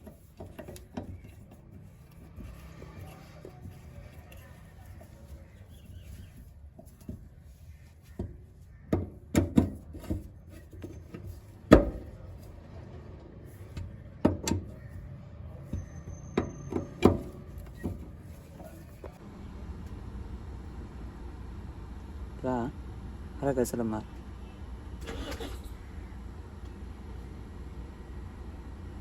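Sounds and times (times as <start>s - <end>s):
tool knocks and clicks: 8.1s - 12.1s, 13.8s - 14.8s, 15.7s - 18.2s
low steady hum: 15.3s - 29.0s.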